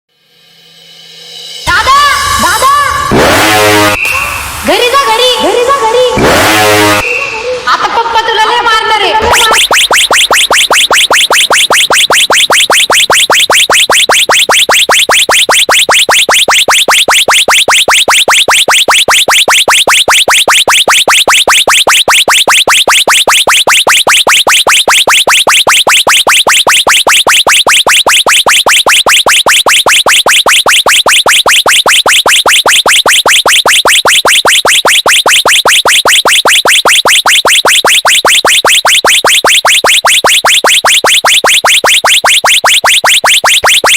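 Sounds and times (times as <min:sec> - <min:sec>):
electronic bird-call horn chirping: 0:03.1 - 0:04.1, 0:06.2 - 0:07.2.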